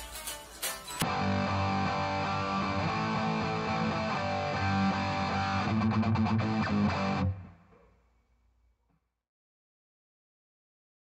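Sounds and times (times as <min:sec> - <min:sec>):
electric guitar riff: 0:01.0 - 0:07.6.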